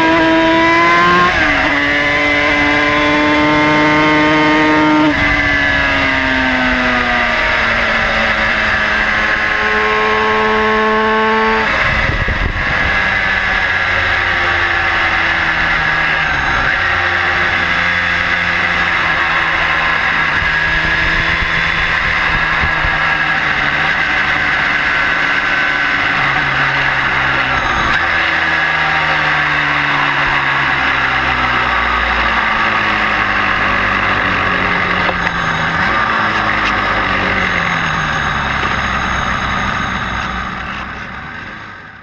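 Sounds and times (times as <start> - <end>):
wind rushing over microphone: 0.0 - 13.7, 18.9 - 23.9
motorcycle engine onboard: 0.0 - 42.0.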